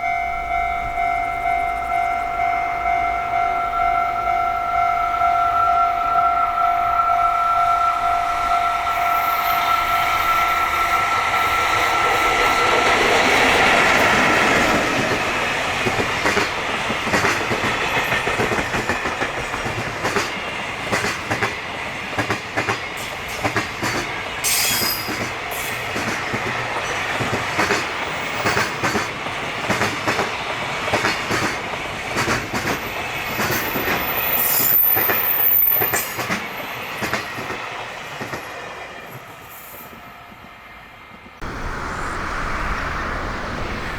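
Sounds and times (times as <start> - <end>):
steady high tone: 0.0 - 13.6.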